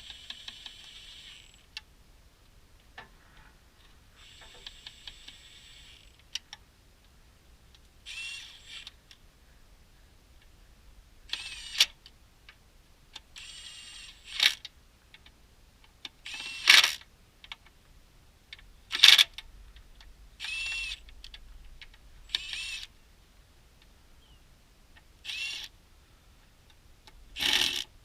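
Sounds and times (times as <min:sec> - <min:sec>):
power tool whirring: 0:00.0 - 0:01.6, 0:04.2 - 0:06.2, 0:08.1 - 0:09.0, 0:11.3 - 0:11.9, 0:13.4 - 0:14.6, 0:16.2 - 0:17.0, 0:20.4 - 0:21.0, 0:22.3 - 0:22.9, 0:25.2 - 0:25.7, 0:27.4 - 0:27.9.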